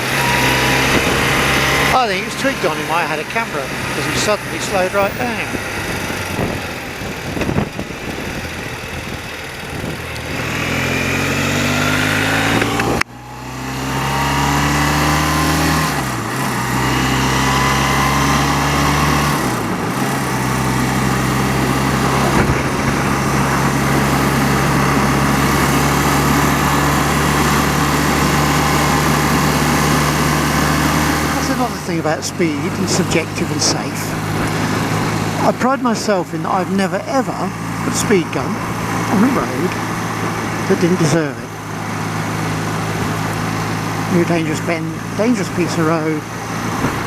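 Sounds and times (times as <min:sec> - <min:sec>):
motorcycle engine accelerating: 0:00.0 - 0:47.0.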